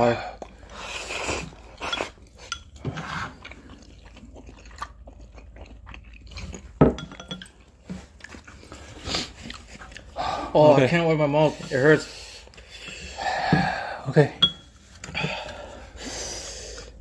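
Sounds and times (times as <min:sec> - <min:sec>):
chewing and wet mouth noises: 0:00.0 - 0:13.2.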